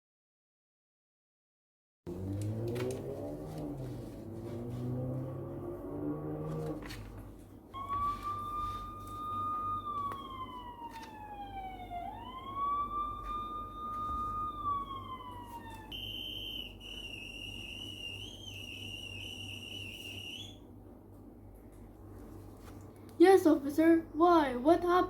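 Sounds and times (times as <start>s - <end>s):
police siren wailing: 2.1s - 20.7s.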